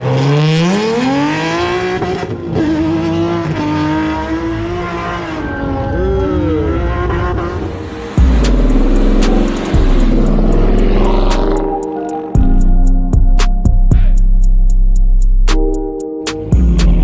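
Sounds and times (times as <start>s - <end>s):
car engine revving hard: 0.0s - 5.9s, 6.5s - 11.8s
deep bass rumble: 6.9s - 11.8s, 12.4s - 17.0s.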